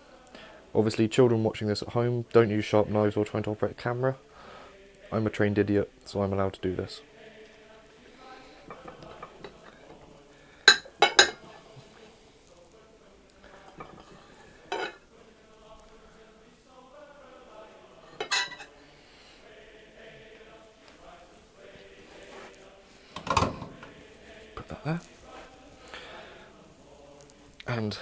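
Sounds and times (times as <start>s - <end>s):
knife clinking on a plate: 10.7s - 11.5s, 13.8s - 15.0s, 18.2s - 18.7s.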